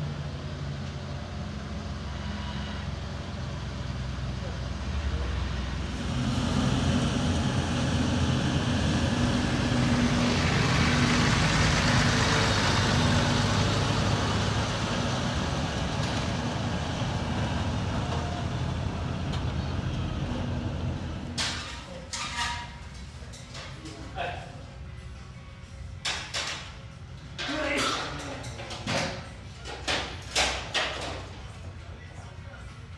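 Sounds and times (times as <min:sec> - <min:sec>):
vehicle engine humming: 0:00.0 - 0:21.8.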